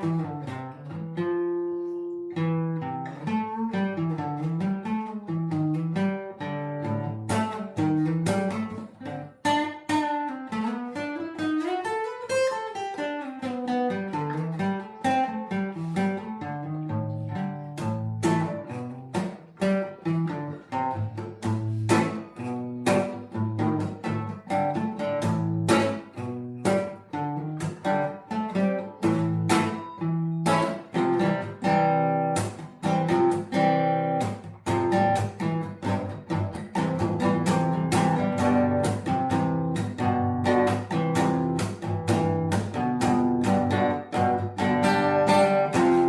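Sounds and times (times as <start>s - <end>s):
acoustic guitar playing: 0.0s - 46.0s.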